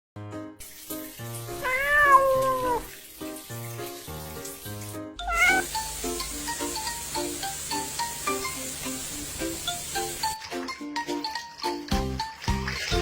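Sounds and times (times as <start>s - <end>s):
cat meowing: 1.5s - 2.9s, 5.2s - 5.8s.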